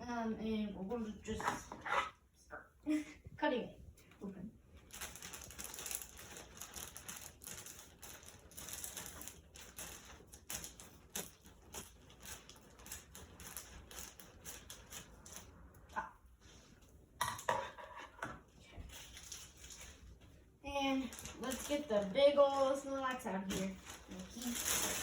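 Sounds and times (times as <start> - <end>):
packaging clicks and crinkles: 4.8 - 15.7, 21.0 - 25.0.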